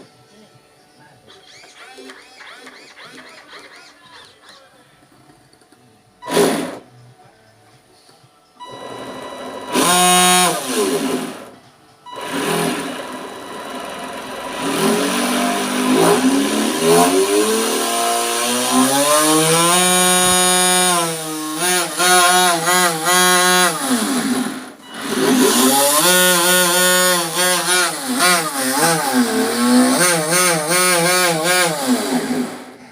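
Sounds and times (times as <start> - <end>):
model boat motor revving: 6.2 - 6.8, 8.7 - 11.6, 12.2 - 32.9.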